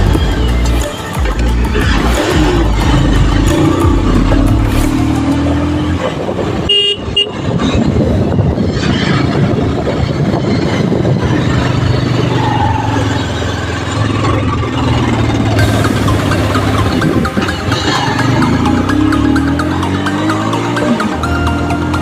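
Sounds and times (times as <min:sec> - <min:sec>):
motorcycle road noise: 0:00.0 - 0:22.0
vehicle horn toot: 0:06.6 - 0:07.5.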